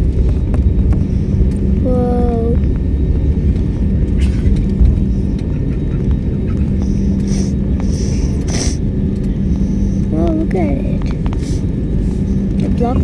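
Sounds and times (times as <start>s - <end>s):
airliner cabin rumble: 0.0s - 13.0s
steady hum: 0.0s - 13.0s.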